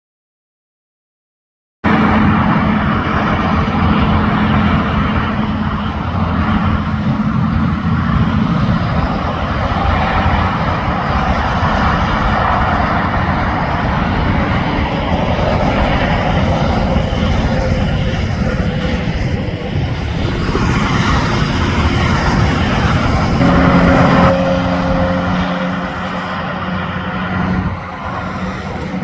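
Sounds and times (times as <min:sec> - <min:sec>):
heavy highway traffic roar: 0:01.8 - 0:29.0
diesel engine hum: 0:01.9 - 0:29.0.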